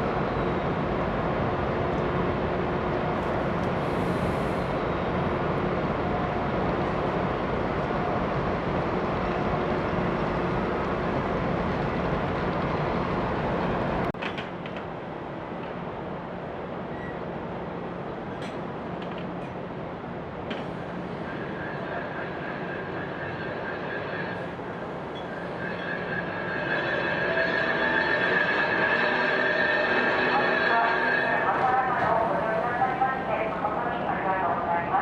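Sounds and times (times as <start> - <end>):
ferry engines humming: 0.0 - 35.0.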